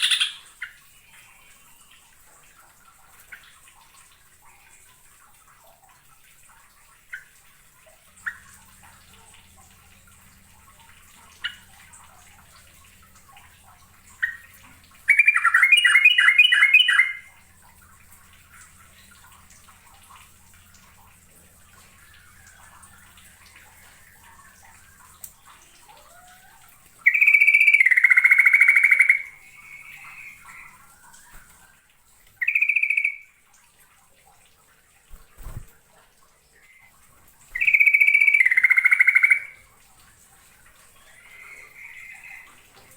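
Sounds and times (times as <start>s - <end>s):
bulbul singing: 0.0s - 1.5s, 10.1s - 19.2s, 21.7s - 31.5s, 32.4s - 33.4s, 37.5s - 39.6s.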